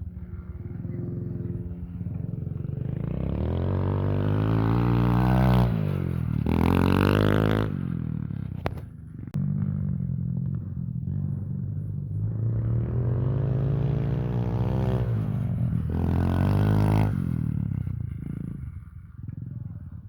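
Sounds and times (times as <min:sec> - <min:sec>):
pit bike engine revving: 0:00.4 - 0:08.0, 0:10.5 - 0:18.8.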